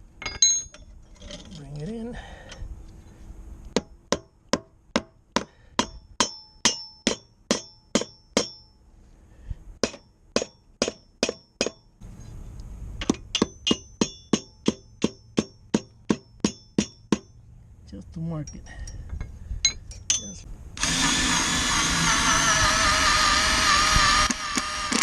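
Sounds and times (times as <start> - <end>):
hammer striking metal: 3.8 - 8.8, 9.8 - 11.8, 13.0 - 17.3.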